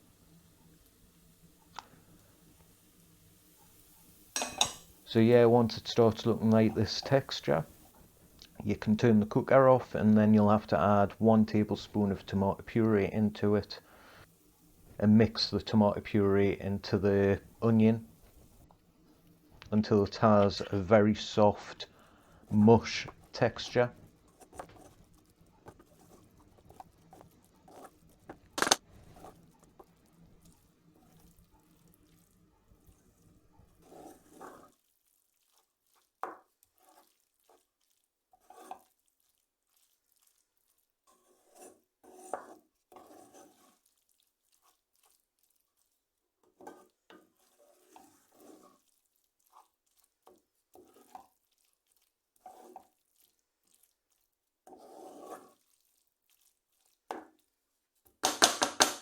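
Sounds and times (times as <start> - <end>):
spoon stirring and scraping in a pan: 0.0 - 59.0.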